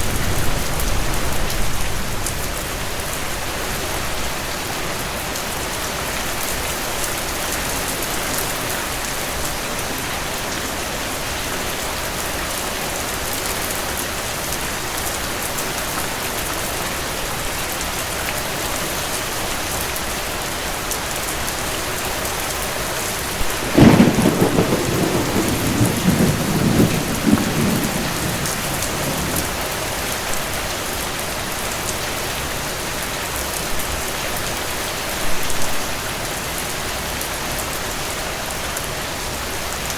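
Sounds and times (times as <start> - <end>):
thunder clap and rumble: 0.0 - 3.1, 23.4 - 30.6
steady rainfall: 0.0 - 39.9.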